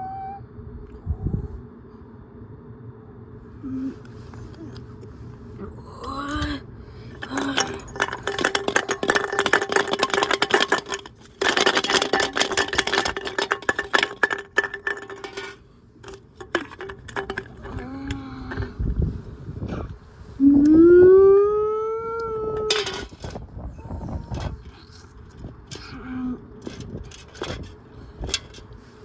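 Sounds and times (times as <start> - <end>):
bottle clattering in drum: 7.2 - 17.8.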